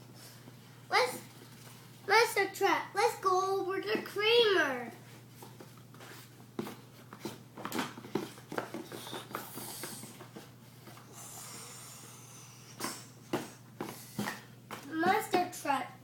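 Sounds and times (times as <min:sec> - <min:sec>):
soft hissing: 0:11.1 - 0:13.1.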